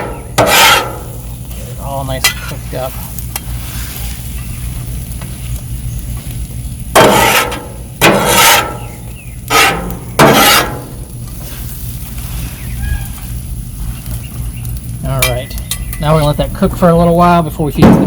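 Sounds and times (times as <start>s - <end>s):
metal spatula scraping griddle: 0.0s - 4.5s, 7.0s - 13.3s
steady low hum: 0.0s - 18.0s.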